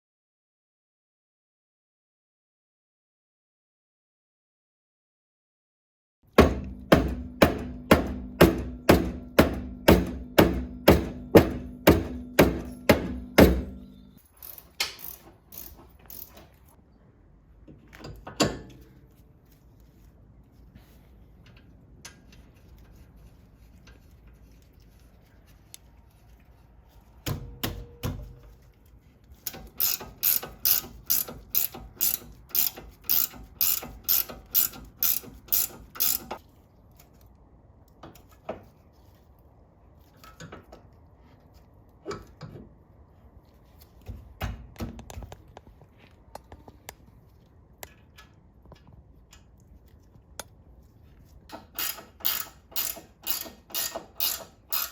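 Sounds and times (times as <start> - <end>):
ratchet wrench clicking: 14.4 - 16.5, 29.4 - 36.4, 51.5 - 54.9.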